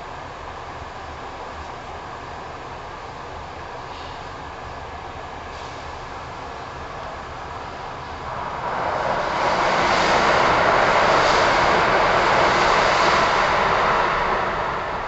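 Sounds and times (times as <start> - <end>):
train passing with rushing noise: 4.6 - 15.0.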